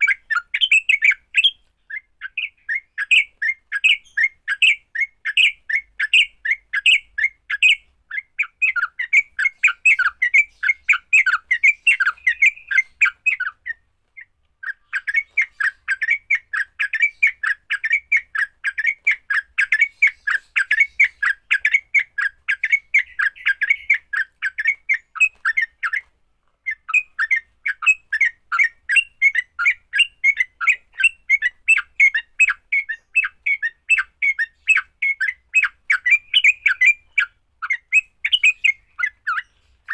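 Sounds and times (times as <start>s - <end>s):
bird chattering call: 0.0s - 26.0s, 26.7s - 39.9s.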